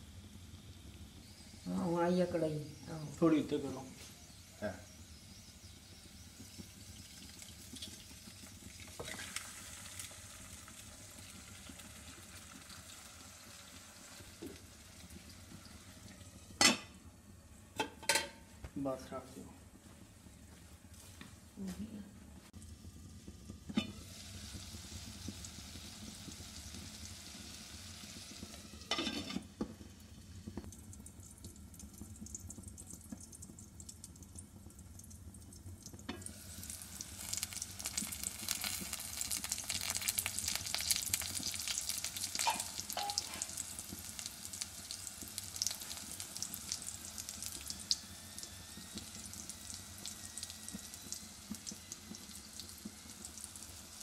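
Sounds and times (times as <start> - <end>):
food sizzling in oil: 0.0 - 18.3, 22.6 - 54.0.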